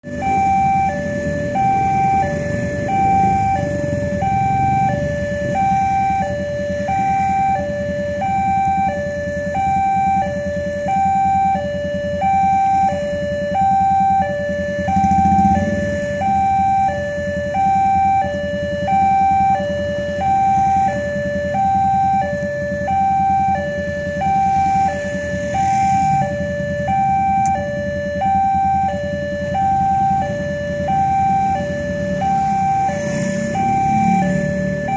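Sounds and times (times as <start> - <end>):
two-tone crossing alarm: 0.0 - 34.9.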